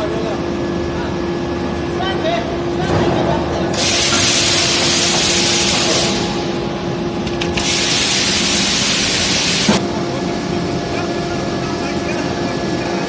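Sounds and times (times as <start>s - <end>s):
machine hum: 0.0s - 13.0s
compressed air hissing: 3.8s - 6.4s, 7.5s - 9.8s.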